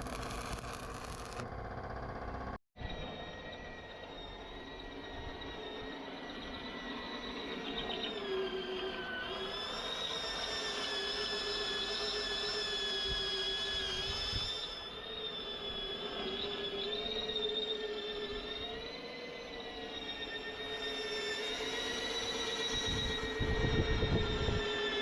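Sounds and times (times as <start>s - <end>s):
electric power tool whining: 0.0s - 1.6s.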